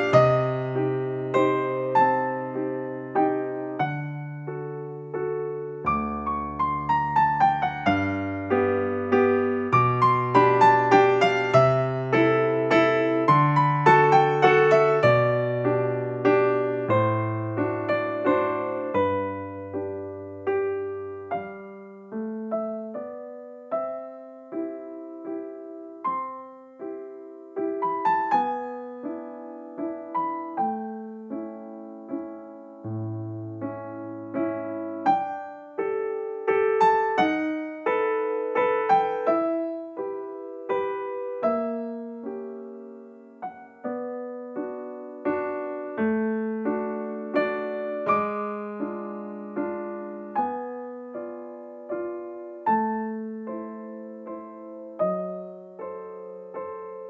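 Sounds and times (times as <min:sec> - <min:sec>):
gentle piano melody: 0:00.0 - 0:57.0.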